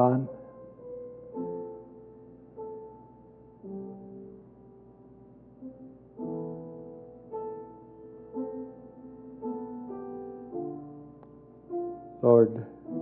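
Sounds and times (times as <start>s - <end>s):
soft piano chords: 0.0s - 13.0s.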